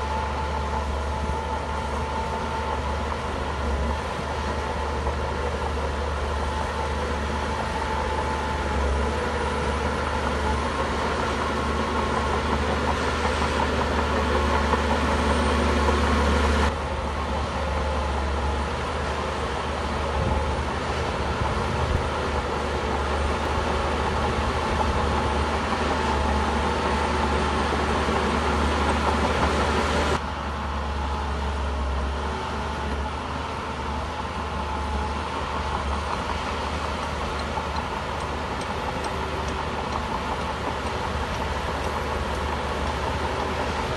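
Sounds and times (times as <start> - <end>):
bulldozer diesel engine drone: 0.0 - 43.9.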